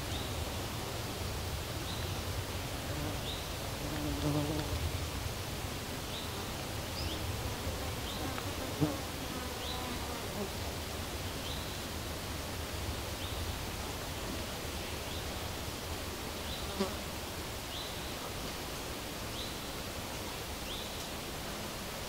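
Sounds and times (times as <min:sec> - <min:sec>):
flying insect buzzing: 0:02.8 - 0:04.9.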